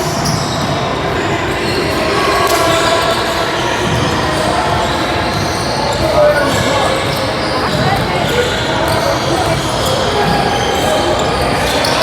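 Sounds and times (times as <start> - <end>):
noise of players and spectators: 0.0 - 12.0
basketball bouncing on court: 3.8 - 12.0.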